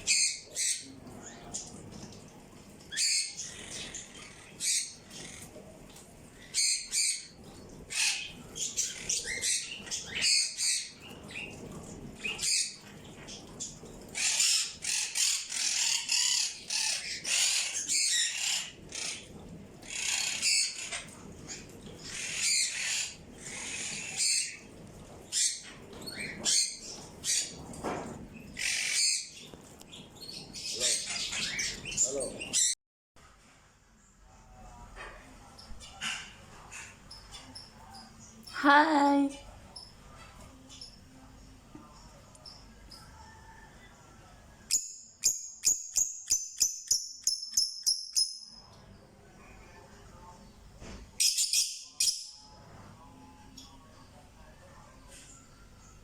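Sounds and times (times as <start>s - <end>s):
birds chirping: 0.0s - 32.8s.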